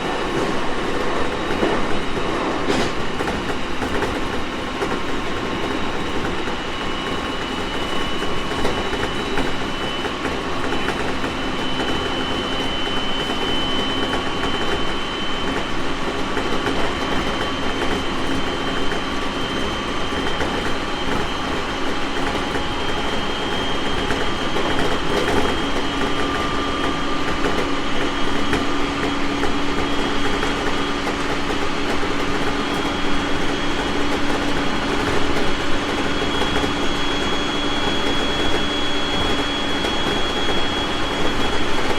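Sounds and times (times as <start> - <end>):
train wheels rumbling: 0.0 - 41.9.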